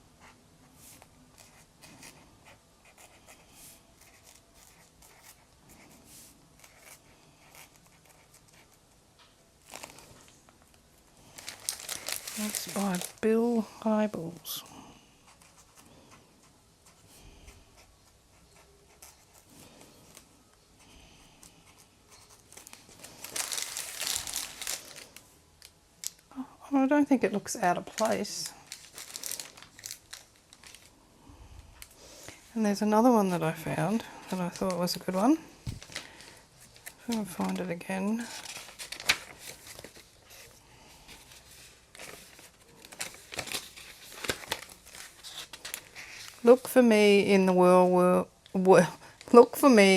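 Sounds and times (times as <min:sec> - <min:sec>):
handling paper and art materials: 0:09.4 - 0:14.6, 0:22.1 - 0:26.3, 0:27.1 - 0:31.0, 0:31.8 - 0:47.2
paper rustling: 0:11.2 - 0:13.2, 0:22.1 - 0:25.2, 0:27.8 - 0:30.9, 0:34.6 - 0:37.6, 0:38.2 - 0:46.7.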